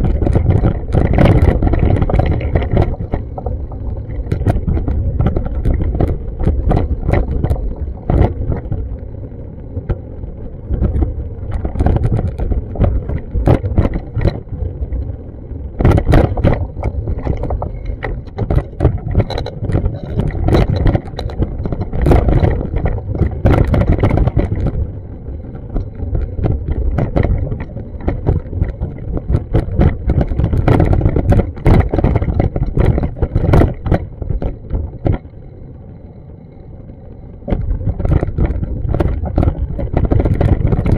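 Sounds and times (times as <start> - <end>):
sharp clicks and knocks: 0.0 - 9.0, 10.7 - 15.0, 15.7 - 35.3, 37.4 - 40.9
wind buffeting microphone: 0.0 - 40.9.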